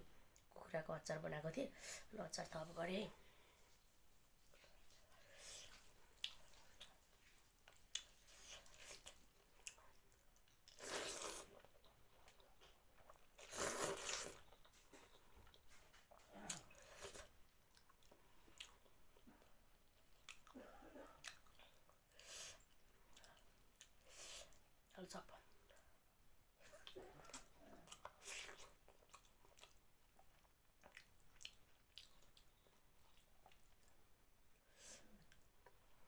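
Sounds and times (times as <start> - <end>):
person chewing food: 4.8 - 24.7, 26.6 - 34.1.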